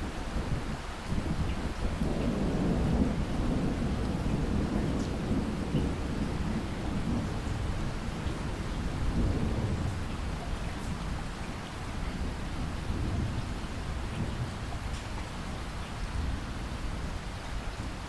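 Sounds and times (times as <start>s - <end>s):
distant thunder rumbling: 1.9s - 10.8s.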